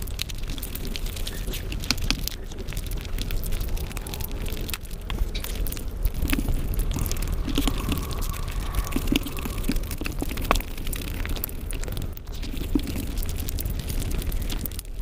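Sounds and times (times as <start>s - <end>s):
wet chewing and lip smacking: 0.1s - 14.9s.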